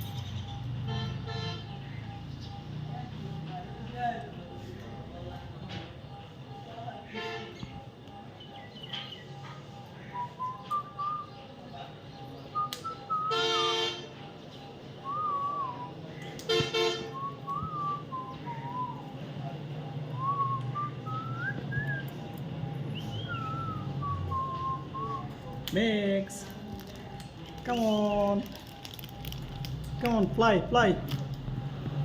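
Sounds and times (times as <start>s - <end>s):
whistled tune: 10.1s - 13.8s, 14.6s - 16.0s, 17.0s - 19.2s, 19.8s - 25.6s.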